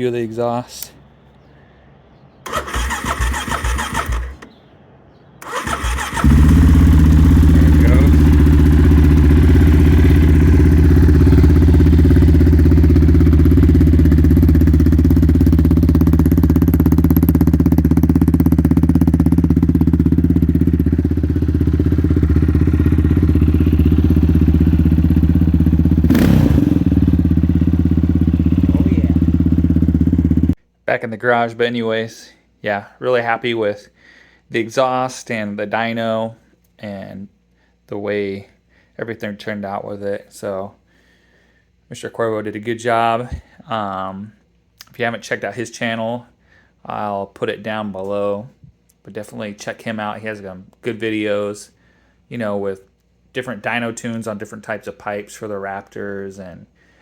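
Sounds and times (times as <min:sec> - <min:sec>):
electric starter cranking: 0:02.5 - 0:04.5, 0:05.4 - 0:06.8
engine idling loudly: 0:06.2 - 0:30.6.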